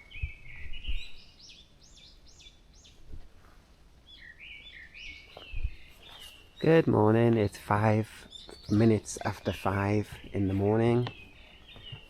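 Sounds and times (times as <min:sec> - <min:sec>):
songbird whistling: 0:00.0 - 0:03.0.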